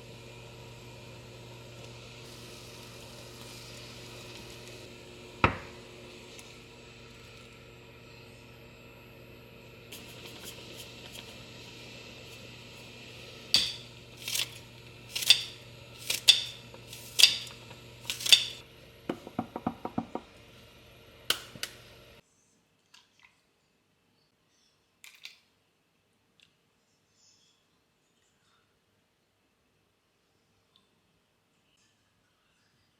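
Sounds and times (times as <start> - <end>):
steady hum: 0.0 - 22.2
kitchen utensil knocks: 19.1 - 20.3.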